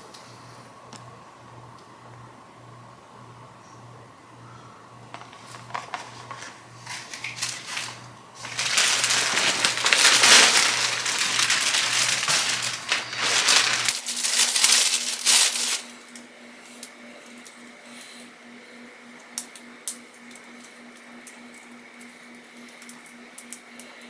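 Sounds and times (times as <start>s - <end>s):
packaging crinkling: 5.2s - 16.2s.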